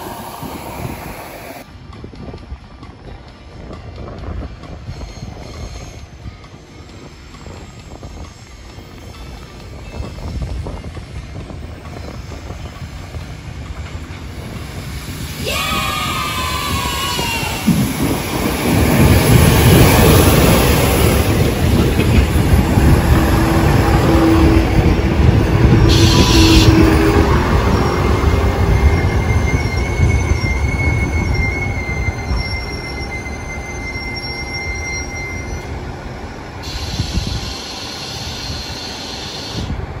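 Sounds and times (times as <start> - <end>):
train wheels rumbling: 0.0 - 40.0
high brake squeal: 25.9 - 26.9, 27.7 - 35.7, 36.5 - 39.7.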